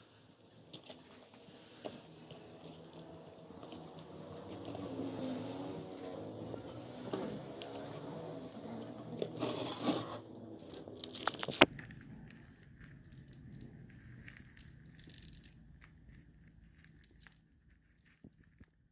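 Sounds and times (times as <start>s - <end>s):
crinkling handling noise: 9.1s - 18.9s.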